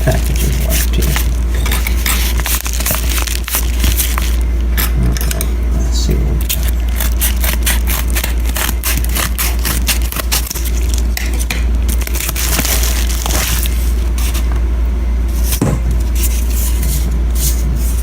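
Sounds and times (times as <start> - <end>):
packaging crinkling and tearing: 0.0 - 4.4, 6.4 - 14.5
steady low hum: 0.0 - 18.0.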